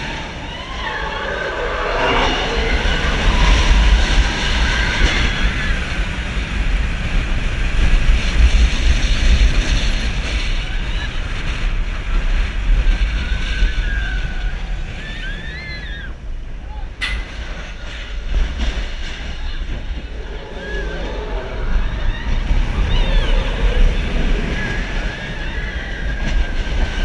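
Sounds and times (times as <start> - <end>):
roller coaster rumbling on track: 0.0 - 27.0
wind rushing over microphone: 0.0 - 27.0.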